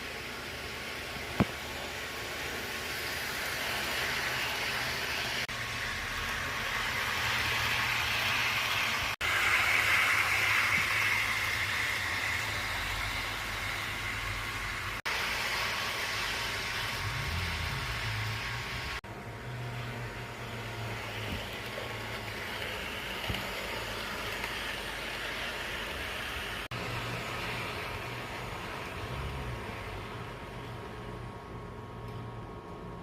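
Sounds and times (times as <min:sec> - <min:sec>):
model train motor whirring: 0:19.8 - 0:26.7.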